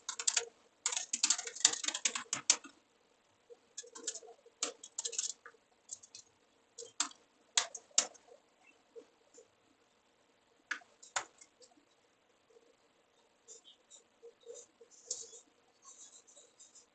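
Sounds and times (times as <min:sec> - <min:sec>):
keyboard keys clicking: 0:00.0 - 0:02.7, 0:03.8 - 0:06.2.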